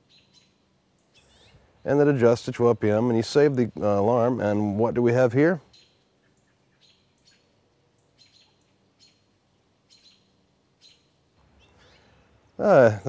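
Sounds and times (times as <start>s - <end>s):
faint bird chirps: 0.0s - 2.0s, 5.6s - 13.0s.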